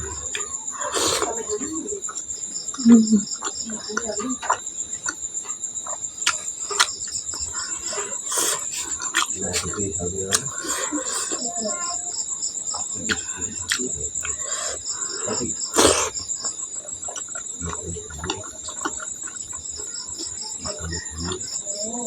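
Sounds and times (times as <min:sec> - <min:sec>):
chewing and mouth clicks: 0:00.0 - 0:22.0
crickets chirping: 0:00.0 - 0:22.0.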